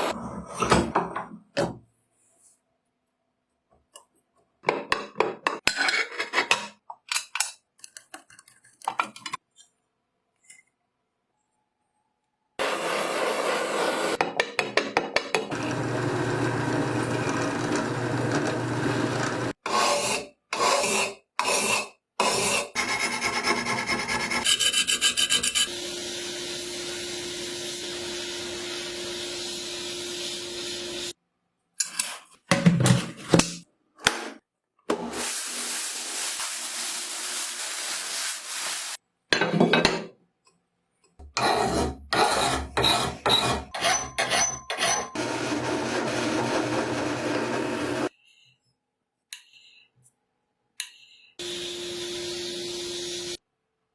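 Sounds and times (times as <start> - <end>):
metal filing and sanding: 19.0 - 25.7, 41.4 - 45.2.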